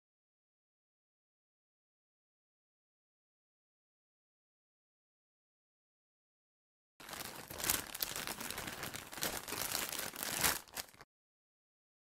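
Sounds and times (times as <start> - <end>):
foil wrapper tearing and crinkling: 7.0 - 11.1.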